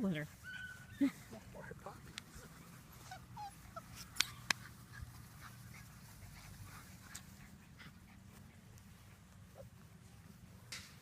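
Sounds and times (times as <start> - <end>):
puppies whimpering and yipping: 0.3 - 1.6, 2.3 - 8.4.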